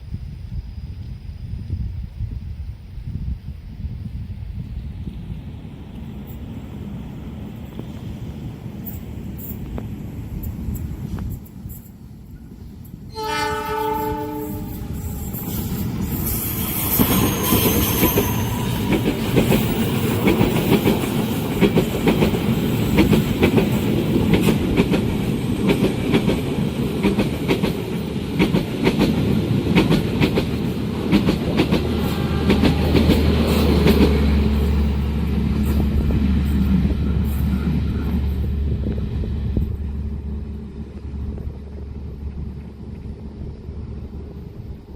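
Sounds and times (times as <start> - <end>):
train horn blast: 13.1 - 15.4, 31.8 - 38.7
train wheels clattering: 14.6 - 43.1
low drone: 31.9 - 44.9.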